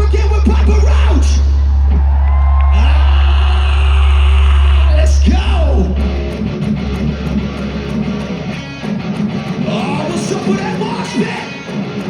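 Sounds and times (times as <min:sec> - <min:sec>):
deep bass drone: 0:00.0 - 0:09.7
rock band playing live: 0:05.8 - 0:12.0.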